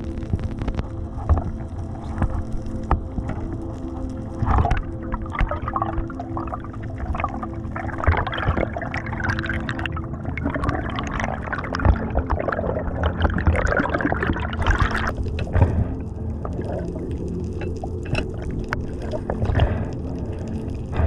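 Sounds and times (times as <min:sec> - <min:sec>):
underwater bubbling and crackling: 0:00.0 - 0:21.0.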